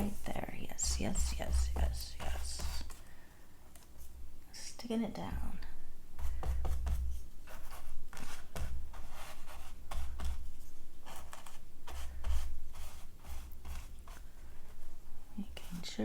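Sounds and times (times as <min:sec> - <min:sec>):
paper scraping strokes: 0:06.2 - 0:14.8.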